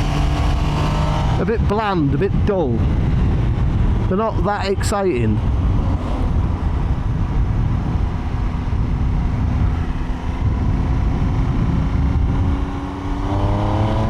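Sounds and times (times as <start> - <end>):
motorcycle engine running: 0.0 - 1.5, 5.4 - 14.0
wind noise on microphone: 0.0 - 14.0.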